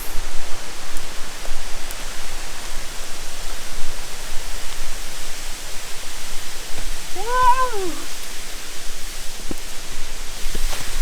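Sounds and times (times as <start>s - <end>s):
waterfall rushing: 7.1s - 8.3s.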